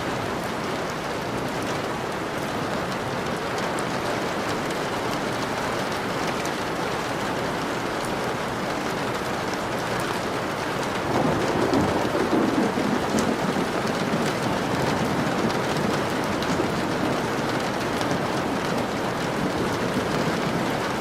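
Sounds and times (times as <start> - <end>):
steady rain: 0.0 - 21.0
thunder rumbling: 11.0 - 21.0.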